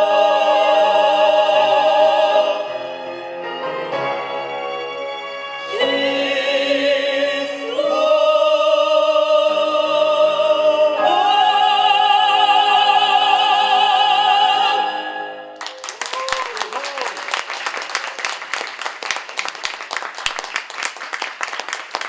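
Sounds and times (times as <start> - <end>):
classical singing with orchestra: 0.0 - 15.7
audience applause: 15.6 - 22.0.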